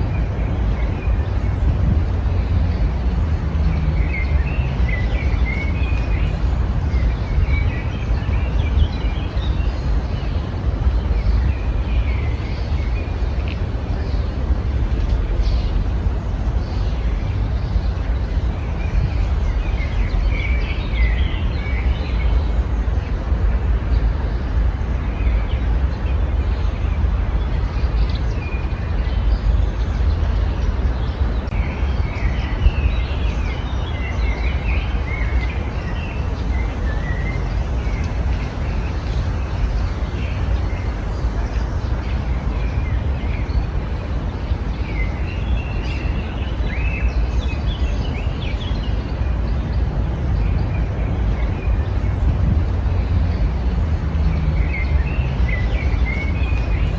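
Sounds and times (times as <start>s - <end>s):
small birds chirping: 0.0s - 56.9s
steady low rumble: 0.0s - 56.9s.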